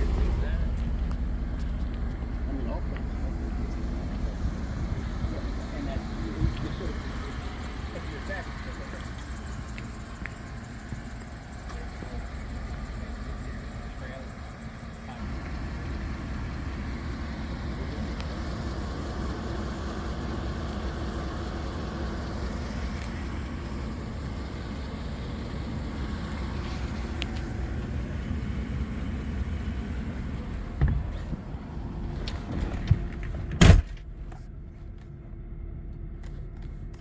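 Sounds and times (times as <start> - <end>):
engine idling: 0.0 - 37.0
short thump: 30.6 - 31.5, 32.4 - 34.1.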